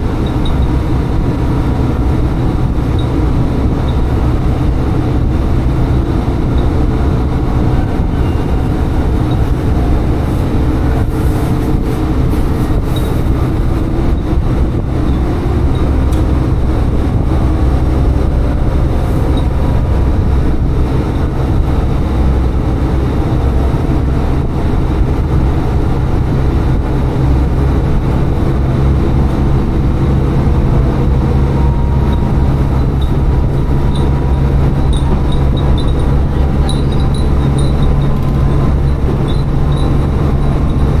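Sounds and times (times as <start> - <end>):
diesel railcar engine drone: 0.0 - 41.0
wheels rumbling on rails: 0.0 - 41.0.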